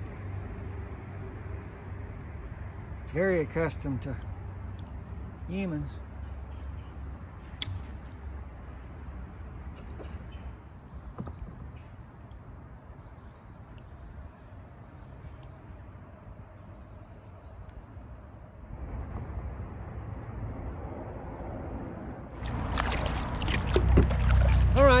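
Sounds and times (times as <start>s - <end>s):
paddle dipping in water: 22.4s - 25.0s
water washing along hull: 22.4s - 25.0s.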